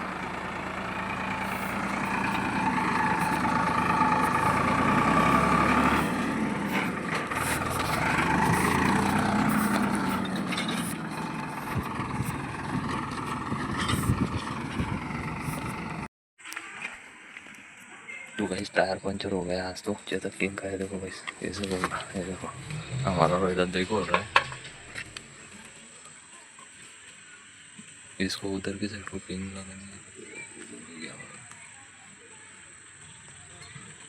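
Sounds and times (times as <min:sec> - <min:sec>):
tractor diesel engine running: 0:00.0 - 0:16.1, 0:21.4 - 0:25.6.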